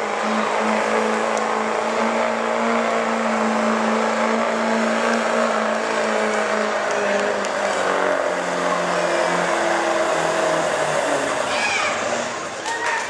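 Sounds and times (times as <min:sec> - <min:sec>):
diesel pickup engine at high revs: 0:00.0 - 0:12.6.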